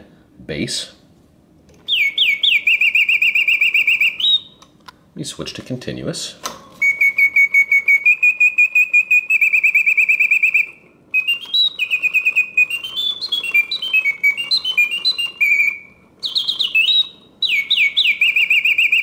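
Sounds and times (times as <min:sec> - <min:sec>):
mechanical bird whistle trilling: 0:01.9 - 0:04.6, 0:06.8 - 0:19.0.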